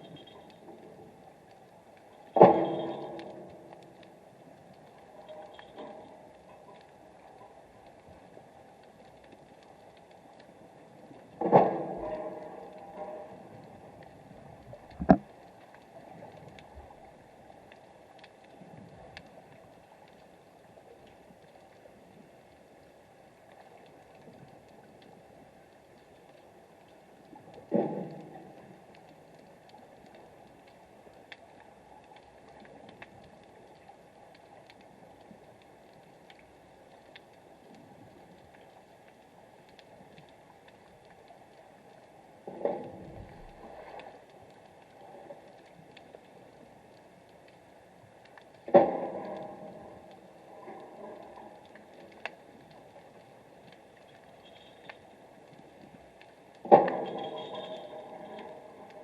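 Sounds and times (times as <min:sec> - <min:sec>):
faint clicks: 0:00.0 - 0:59.0
steady low underwater hiss: 0:00.0 - 0:59.0
heavy dull thud with rumble: 0:15.0 - 0:15.2.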